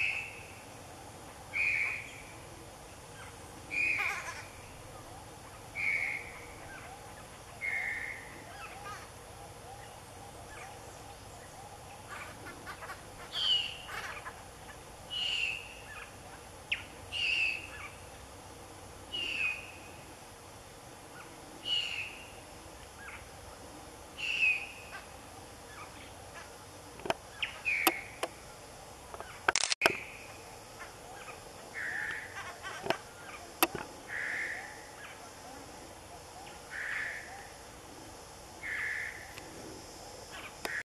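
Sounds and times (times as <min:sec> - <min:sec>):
bird calling: 0:00.0 - 0:18.3, 0:19.1 - 0:20.1, 0:21.0 - 0:39.7
sharp clicks: 0:29.2 - 0:30.0.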